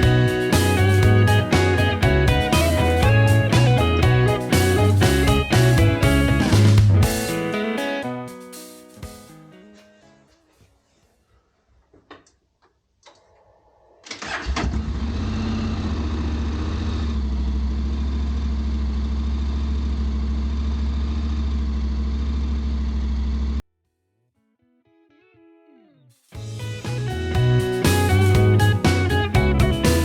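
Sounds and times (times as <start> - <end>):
engine starter cranking: 14.0 - 15.7.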